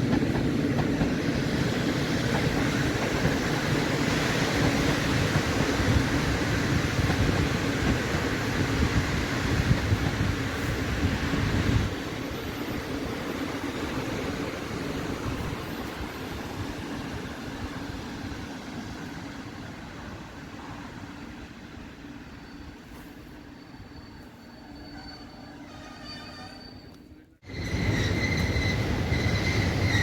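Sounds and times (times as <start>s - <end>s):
train wheels rumbling: 0.0s - 19.3s, 27.4s - 30.0s.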